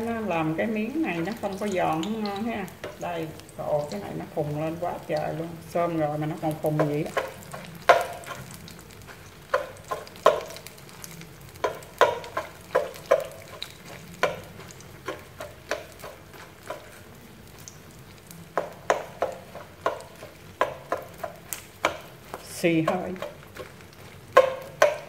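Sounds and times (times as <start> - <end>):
food sizzling in oil: 0.0 - 25.0
fork tapping against pan: 6.7 - 8.5, 9.5 - 10.7, 11.6 - 16.9, 18.5 - 23.7, 24.3 - 25.0.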